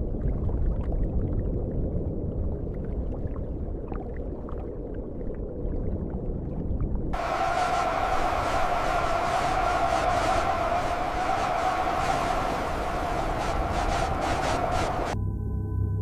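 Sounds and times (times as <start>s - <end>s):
rushing water: 7.2s - 15.2s.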